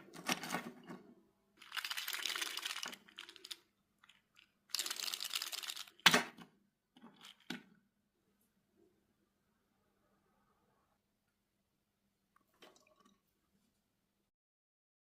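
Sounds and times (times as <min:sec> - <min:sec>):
plastic figures clicking and rattling: 0:01.6 - 0:06.4, 0:07.0 - 0:07.7.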